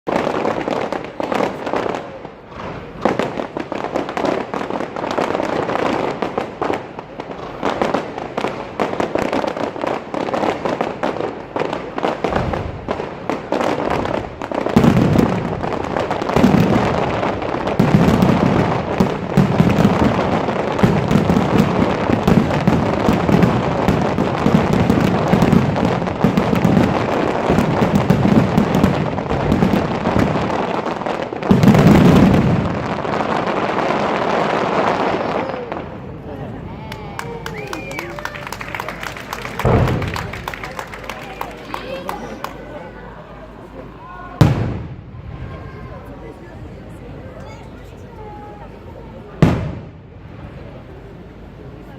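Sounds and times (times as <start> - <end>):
fireworks crackling and popping: 0.1 - 51.9
deep booms of bursting shells: 39.6 - 40.4, 44.4 - 45.3.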